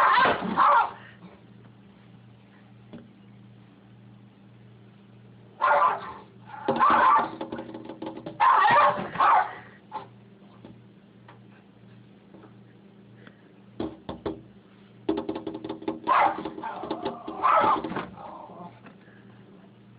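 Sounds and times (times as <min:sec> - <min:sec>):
dog barking: 0:00.0 - 0:01.1, 0:05.6 - 0:07.3, 0:08.4 - 0:10.1, 0:16.1 - 0:17.9.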